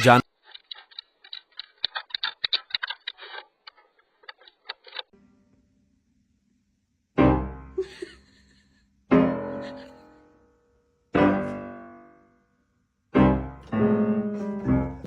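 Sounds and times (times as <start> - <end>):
slow piano chords: 7.2 - 8.0, 9.1 - 10.4, 11.2 - 12.4, 13.2 - 15.0.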